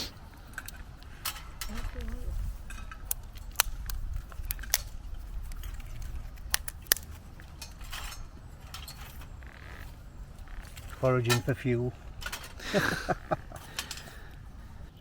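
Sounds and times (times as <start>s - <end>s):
low wind rumble: 0.0s - 15.0s
sticks snapping: 2.9s - 7.8s.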